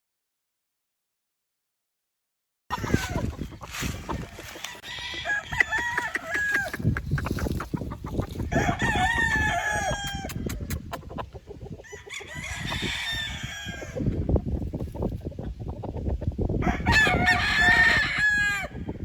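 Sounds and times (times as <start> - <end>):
roosters crowing: 2.7 - 10.8, 11.5 - 14.2, 16.6 - 18.9
quick run of clicks: 10.0 - 11.1.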